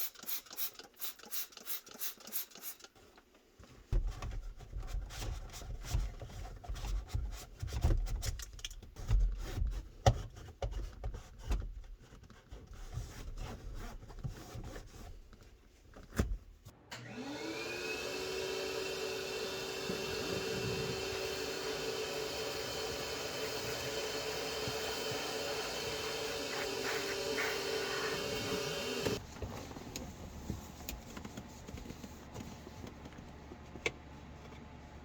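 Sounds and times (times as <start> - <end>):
vacuum cleaner running: 16.9 - 29.3.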